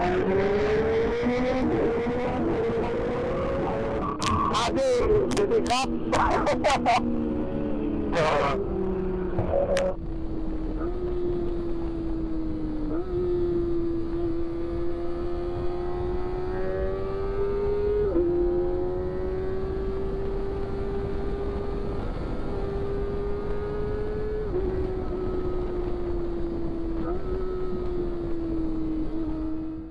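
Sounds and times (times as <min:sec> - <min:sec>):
motorcycle engine at high revs: 0:00.0 - 0:29.9
wind noise on microphone: 0:18.0 - 0:29.9.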